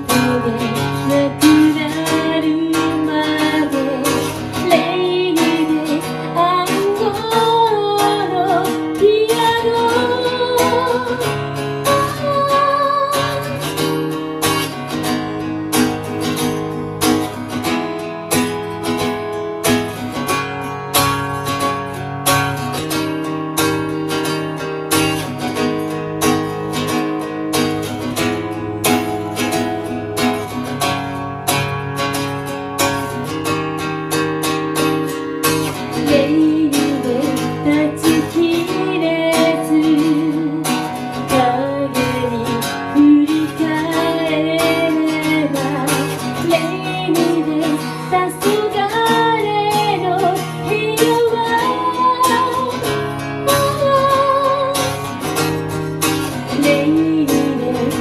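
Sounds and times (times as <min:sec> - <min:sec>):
woman singing: 0:00.0 - 0:15.4, 0:35.6 - 0:58.0
acoustic guitar strumming: 0:00.0 - 0:58.0.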